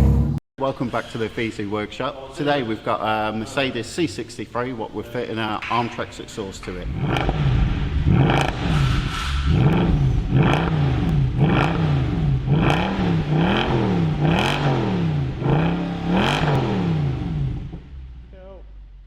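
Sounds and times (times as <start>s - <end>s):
exhaust cracks: 5.6s - 19.0s
car engine revving: 6.6s - 19.0s.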